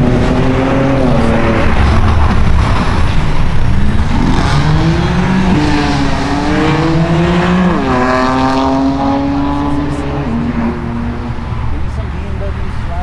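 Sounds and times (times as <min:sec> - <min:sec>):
steady low rumble: 0:00.0 - 0:07.9
car engine accelerating: 0:00.0 - 0:13.0.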